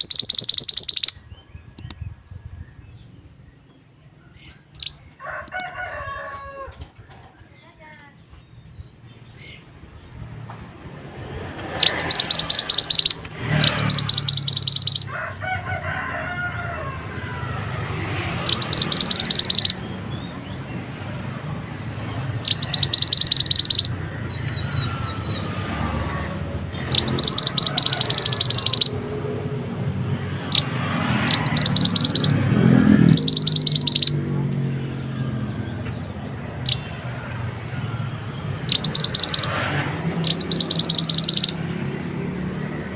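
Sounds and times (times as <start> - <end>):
bird high trill: 0.0 - 2.0, 11.7 - 15.1, 18.4 - 19.9, 22.4 - 25.5, 26.8 - 29.0, 30.5 - 34.3, 36.6 - 37.0, 38.5 - 41.7.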